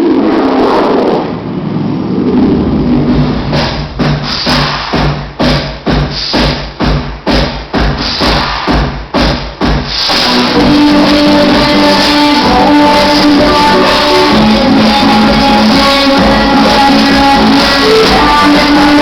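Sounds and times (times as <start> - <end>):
music with heavy beat: 2.9 - 19.0
song with guitar and singing: 10.5 - 19.0.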